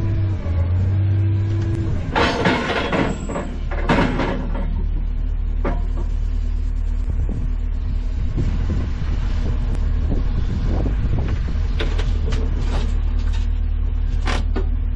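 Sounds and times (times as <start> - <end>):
wind buffeting microphone: 6.9 - 13.0.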